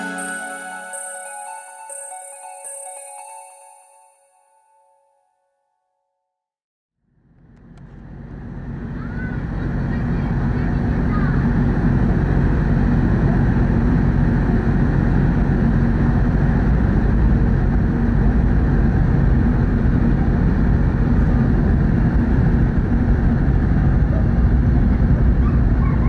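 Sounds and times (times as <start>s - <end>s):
ship engine low drone: 7.4s - 26.0s.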